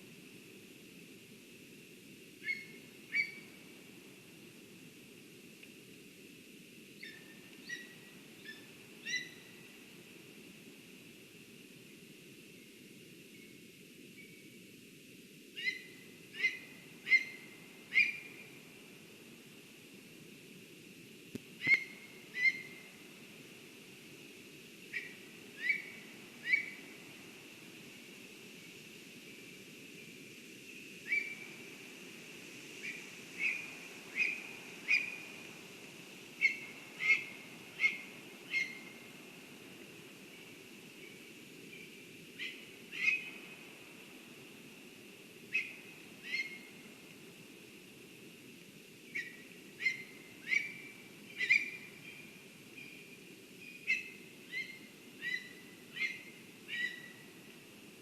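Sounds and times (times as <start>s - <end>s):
faint outdoor background: 0.0s - 58.0s
low background hiss: 0.0s - 58.0s
bird whistled calls: 2.4s - 3.6s, 7.0s - 9.5s, 15.6s - 18.4s, 21.6s - 22.8s, 25.0s - 26.8s, 31.1s - 31.4s, 32.8s - 35.2s, 36.4s - 39.0s, 45.5s - 46.7s, 49.1s - 53.0s, 53.6s - 57.2s.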